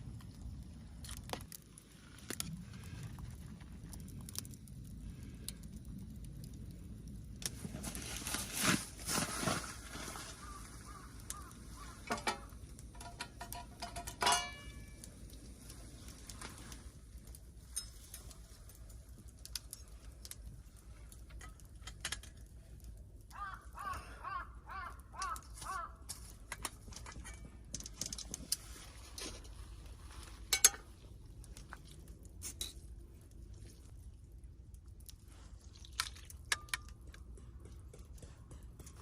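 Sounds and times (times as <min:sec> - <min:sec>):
bird calling: 0:10.2 - 0:12.1, 0:23.3 - 0:26.0
small clicks and knocks: 0:11.3 - 0:15.2, 0:17.7 - 0:22.9.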